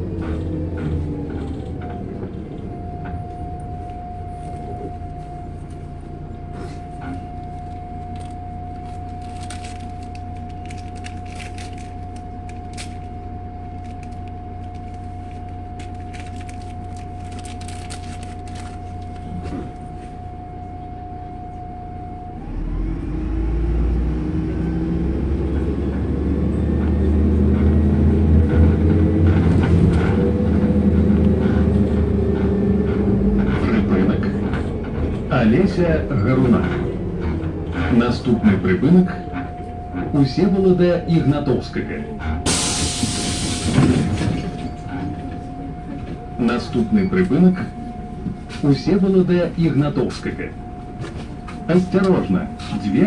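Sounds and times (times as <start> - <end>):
bus diesel engine: 0.0 - 53.0
high whine: 2.2 - 23.6.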